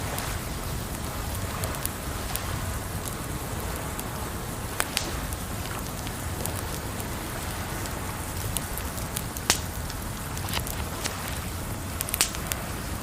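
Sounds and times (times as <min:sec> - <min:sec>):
campfire crackling: 0:00.0 - 0:13.0
water noise: 0:00.0 - 0:13.0.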